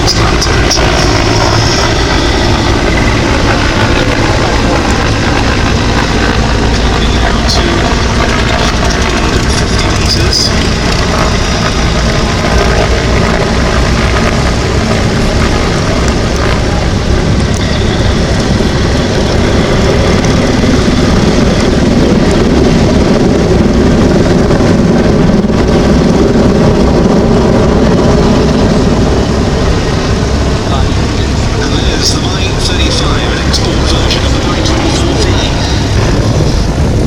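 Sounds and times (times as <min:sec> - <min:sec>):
helicopter engines and rotor: 0:00.0 - 0:37.0.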